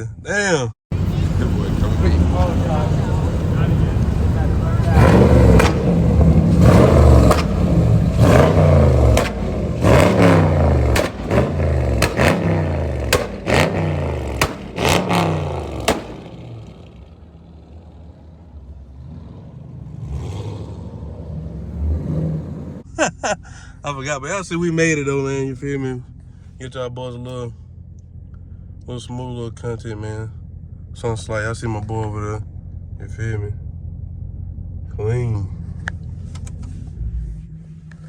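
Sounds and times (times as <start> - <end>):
car engine revving: 0.9 - 22.9, 23.5 - 38.0
exhaust pops and cracks: 4.8 - 17.4.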